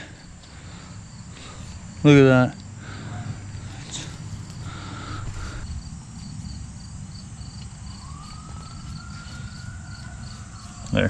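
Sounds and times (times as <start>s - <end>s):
low background rumble: 0.0s - 8.2s
crickets chirping: 0.0s - 11.0s.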